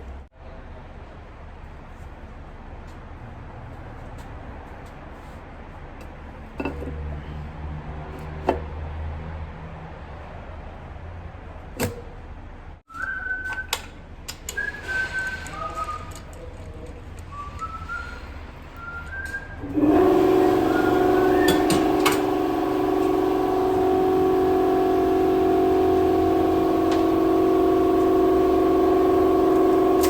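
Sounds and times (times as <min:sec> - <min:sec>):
low workshop hum: 0:00.0 - 0:30.0
person whistling a tune: 0:12.9 - 0:16.4, 0:17.3 - 0:19.7.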